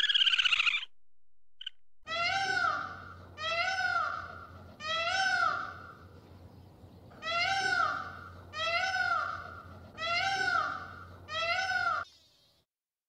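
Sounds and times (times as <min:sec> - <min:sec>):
peacock calling: 0:00.0 - 0:00.9, 0:01.6 - 0:06.2, 0:07.1 - 0:12.2.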